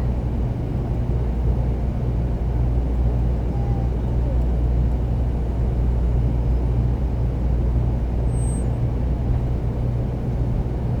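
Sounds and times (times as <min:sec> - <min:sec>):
train rumble inside passenger car: 0:00.0 - 0:11.0.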